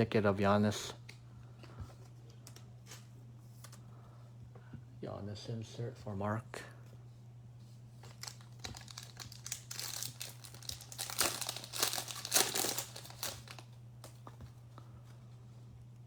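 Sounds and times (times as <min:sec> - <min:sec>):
plastic wrapper crinkling: 0:08.0 - 0:14.2.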